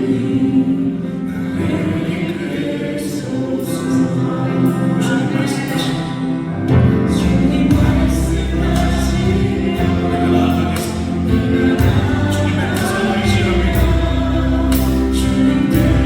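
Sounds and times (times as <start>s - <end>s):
music with choir singing: 0.0s - 16.0s
heavy bass: 6.7s - 16.0s.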